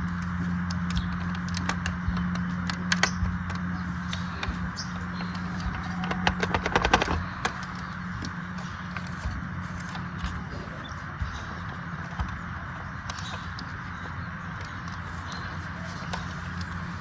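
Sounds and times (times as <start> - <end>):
clicks and taps of handling: 0.0 - 10.6
steady low hum: 0.0 - 17.0.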